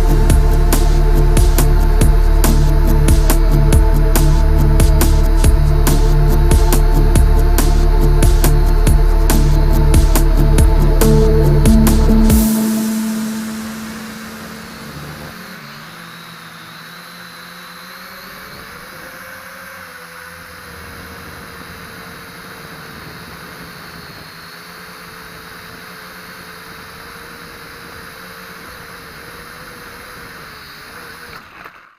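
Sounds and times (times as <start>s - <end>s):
quadcopter motors whining: 14.9s - 31.9s.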